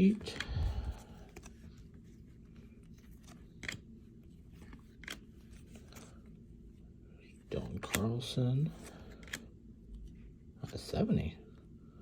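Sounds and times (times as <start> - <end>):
cards flipped through: 0.0 - 6.2, 7.6 - 9.5.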